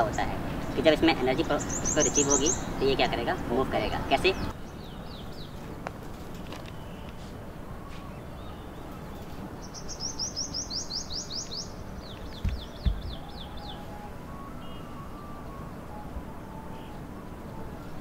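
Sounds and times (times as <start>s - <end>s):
bird chirping: 0.0s - 18.0s
steady outdoor hiss: 0.0s - 18.0s
low thumps: 12.1s - 13.4s.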